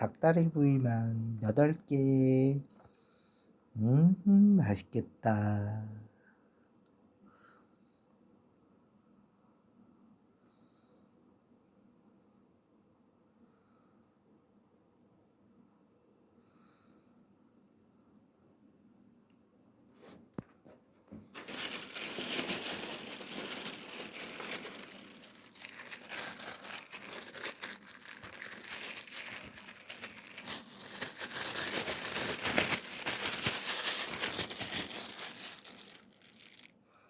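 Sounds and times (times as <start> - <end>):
packaging crinkling and rustling: 21.1 - 36.8.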